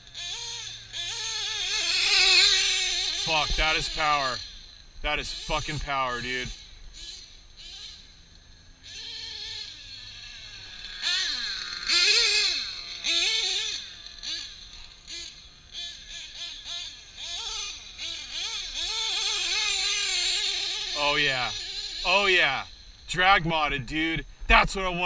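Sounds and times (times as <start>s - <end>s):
model truck nitro engine revving: 0.0s - 25.0s.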